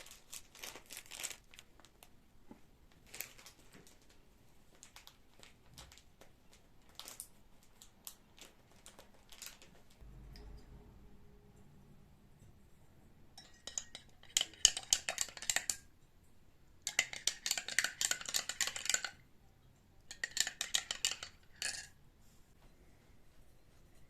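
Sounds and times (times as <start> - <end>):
cutlery and dishes clinking: 13.4 - 15.9, 20.1 - 22.0.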